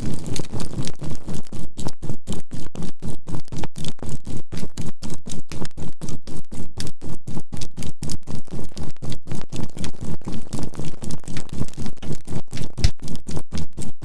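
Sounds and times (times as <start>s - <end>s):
burning charcoal crackling: 0.0s - 1.4s.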